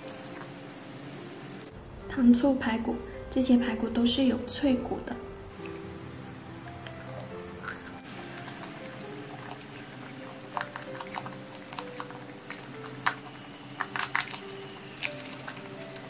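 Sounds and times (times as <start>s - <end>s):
soft background music: 0.0s - 16.0s
close-up chewing: 6.6s - 16.0s
crisp crunches of biting: 6.7s - 16.0s.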